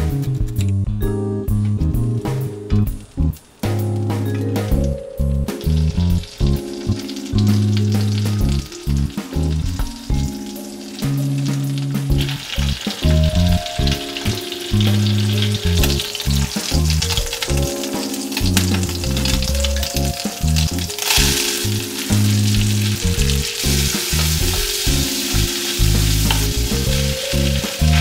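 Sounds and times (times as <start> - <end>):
low background music: 0.0 - 28.0
food sizzling in butter: 5.5 - 28.0
tongs tapping: 24.0 - 28.0.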